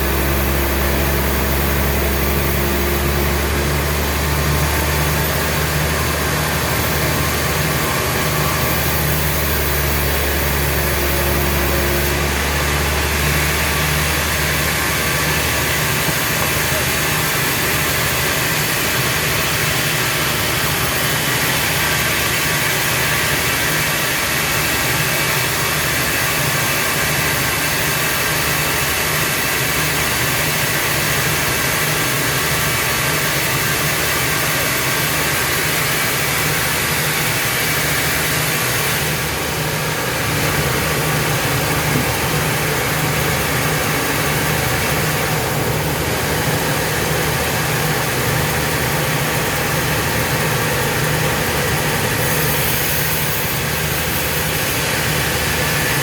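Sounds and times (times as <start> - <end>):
sawmill machinery humming: 0.0 - 56.0.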